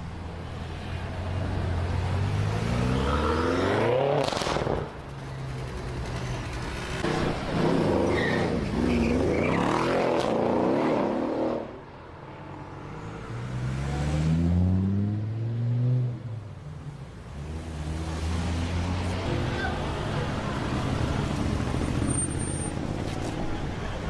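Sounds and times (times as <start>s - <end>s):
loud car engine revving: 2.2s - 4.9s.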